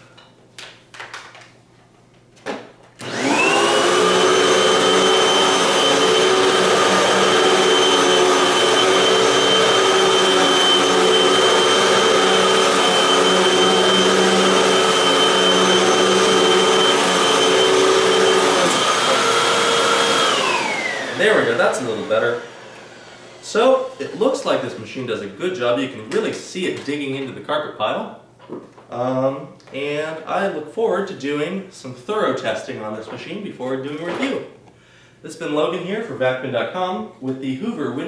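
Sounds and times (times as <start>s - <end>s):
vacuum cleaner motor whine: 3.0s - 24.8s.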